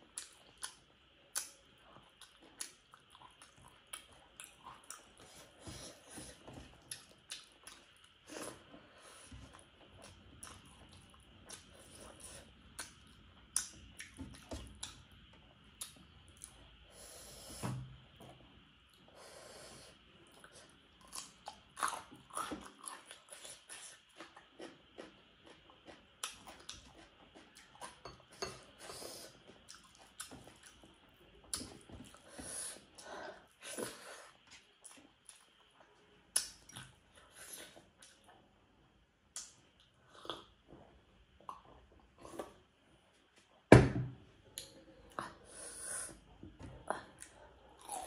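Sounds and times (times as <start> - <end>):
person chewing and smacking: 0.0 - 8.7, 9.4 - 15.2, 15.8 - 16.7, 20.3 - 28.8, 29.4 - 32.2, 33.8 - 38.4.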